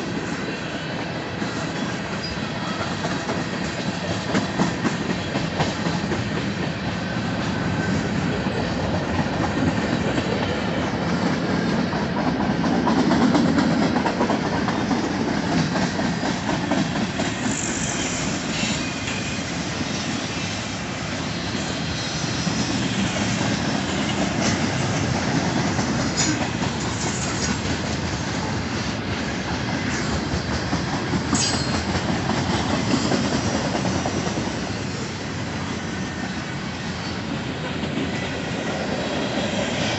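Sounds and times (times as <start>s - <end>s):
clickety-clack over rail joints: 0.0s - 39.9s
freight train wheels rumbling on rails: 0.0s - 39.9s.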